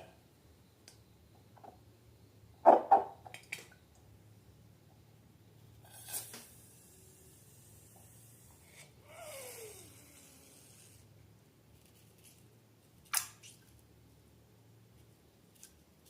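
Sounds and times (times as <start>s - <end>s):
brief hiss: 5.8s - 11.1s.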